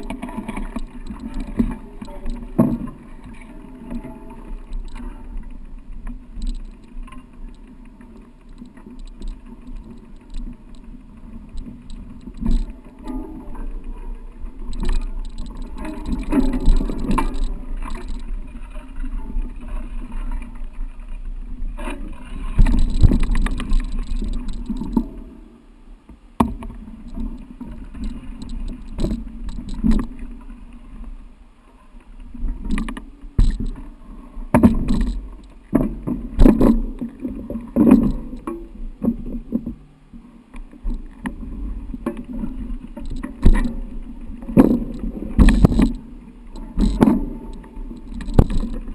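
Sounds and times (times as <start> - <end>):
bike rumbling over rough trail: 0.0 - 20.9, 21.7 - 25.3, 41.0 - 48.9.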